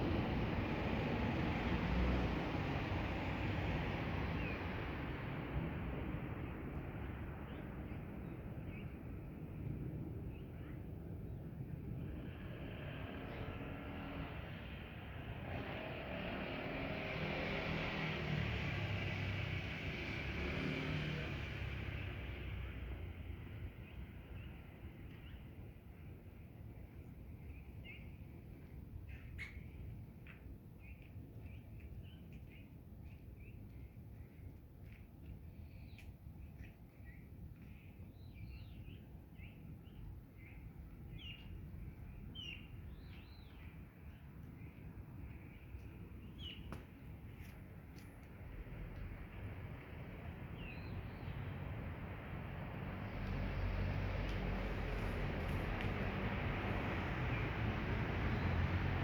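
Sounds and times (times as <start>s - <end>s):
passing vehicle engine: 12.2s - 22.9s, 48.3s - 59.0s
small birds chirping: 29.1s - 48.3s.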